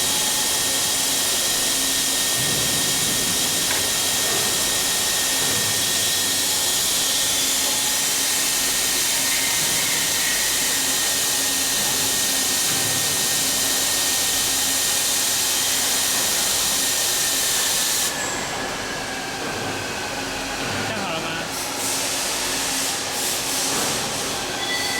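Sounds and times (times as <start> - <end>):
milling machine hiss: 0.0 - 19.4.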